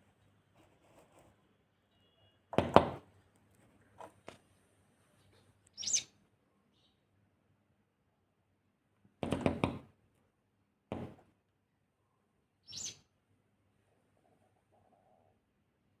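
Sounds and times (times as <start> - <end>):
sparrow chirping: 5.7 - 7.0, 12.6 - 13.1.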